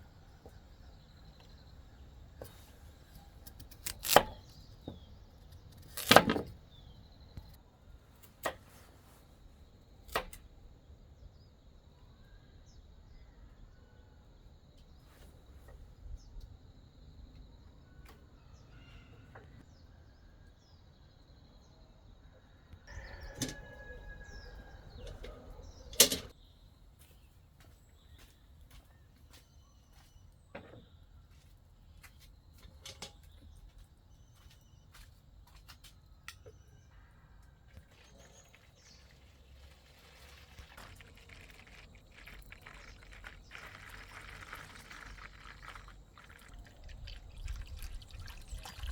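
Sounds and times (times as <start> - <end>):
faint bird chirps: 17.8 - 31.4.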